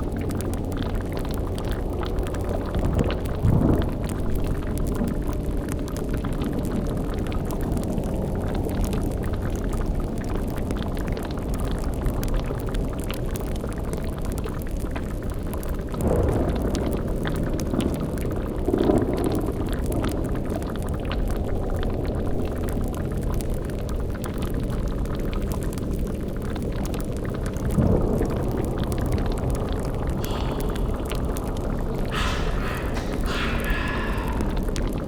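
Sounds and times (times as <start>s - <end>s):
steady low rumble: 0.1s - 6.9s, 27.5s - 35.0s
cauldron bubbling: 26.4s - 35.0s.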